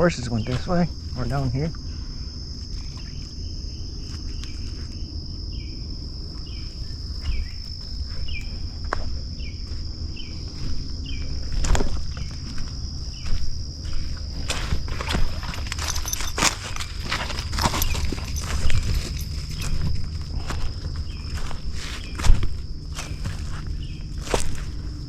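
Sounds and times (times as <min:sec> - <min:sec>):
high-pitched insect trill: 0:00.0 - 0:25.0
footstep crunches: 0:06.4 - 0:25.0.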